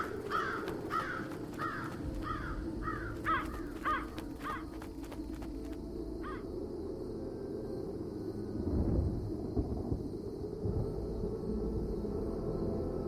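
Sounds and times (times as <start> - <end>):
crows cawing: 0.0 - 5.1, 6.2 - 6.4.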